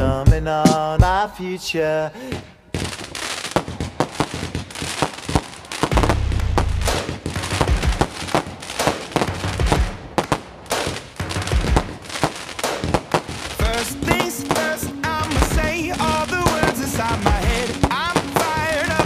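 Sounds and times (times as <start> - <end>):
firework bangs and crackles: 1.9 - 19.0
heavy low firework boom: 5.9 - 8.2.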